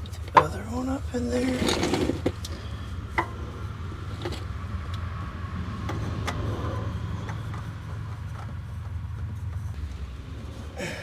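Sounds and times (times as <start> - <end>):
parts clicking and tapping: 0.0 - 0.7, 1.9 - 10.0.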